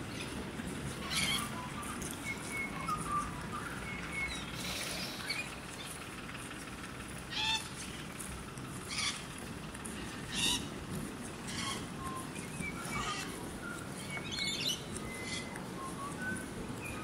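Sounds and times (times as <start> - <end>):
low background rumble: 0.0 - 17.0
thin whistled bird notes: 1.0 - 5.9, 11.4 - 17.0.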